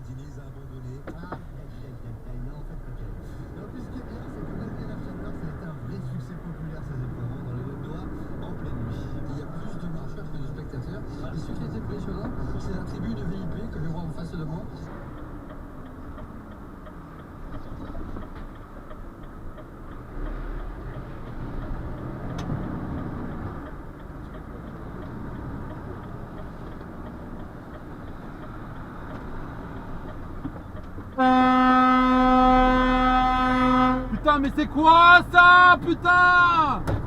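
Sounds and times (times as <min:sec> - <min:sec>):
truck engine and road rumble: 0:00.0 - 0:37.0
loud truck horn blast: 0:31.2 - 0:34.2.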